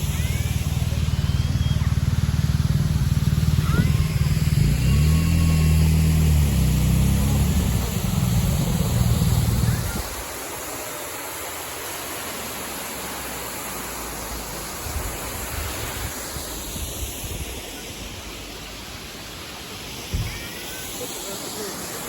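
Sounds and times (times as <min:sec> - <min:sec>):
waterfall rushing: 0:00.0 - 0:22.0
wind buffeting microphone: 0:06.4 - 0:10.4.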